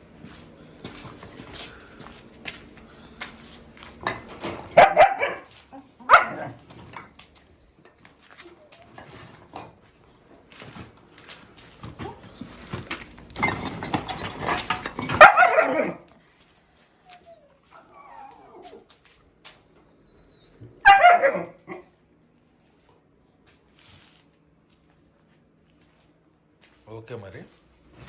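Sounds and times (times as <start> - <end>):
dogs barking: 4.4 - 6.7, 15.0 - 16.1, 20.7 - 22.0.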